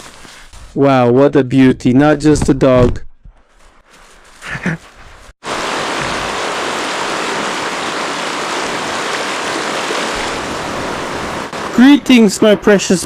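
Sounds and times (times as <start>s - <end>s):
river rapids rushing: 5.5s - 11.9s.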